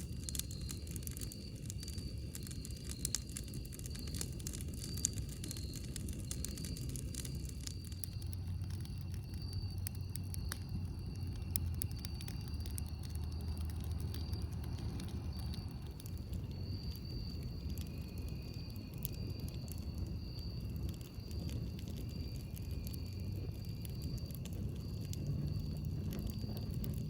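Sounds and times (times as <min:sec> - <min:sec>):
campfire crackling and popping: 0:00.0 - 0:27.0
fire low rumble: 0:00.0 - 0:27.0.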